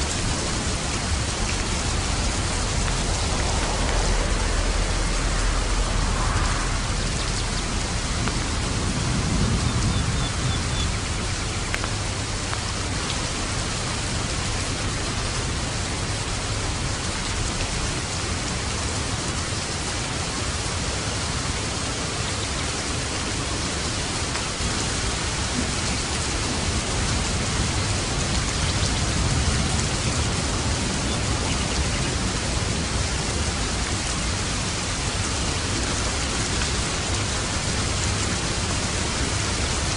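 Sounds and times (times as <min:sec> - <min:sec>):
thunder rumbling: 0:00.0 - 0:17.0
rain on a roof: 0:00.0 - 0:39.9.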